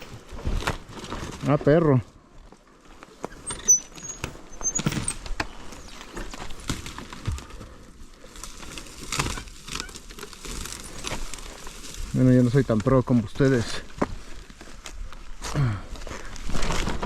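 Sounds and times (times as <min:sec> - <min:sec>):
people moving on rocky ground: 0:00.0 - 0:17.0
short high squeaks: 0:03.2 - 0:06.2.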